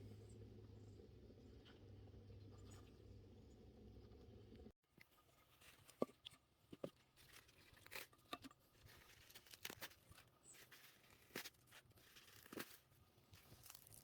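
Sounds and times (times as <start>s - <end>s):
salad greens snapping and tearing: 7.2s - 14.0s.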